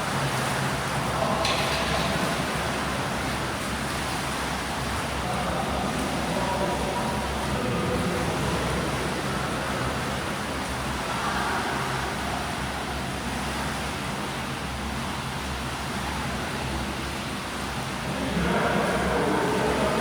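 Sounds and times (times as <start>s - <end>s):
swimming pool ambience: 0.0s - 20.0s.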